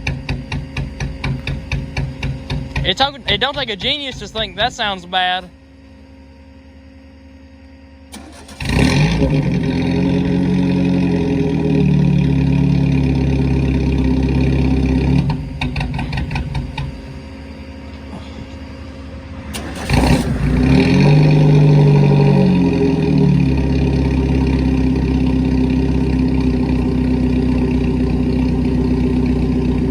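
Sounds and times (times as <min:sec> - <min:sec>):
engine backfiring pops: 0:00.0 - 0:04.9, 0:08.1 - 0:17.4, 0:19.5 - 0:24.7
race car engine revving: 0:08.1 - 0:17.4, 0:19.0 - 0:29.9.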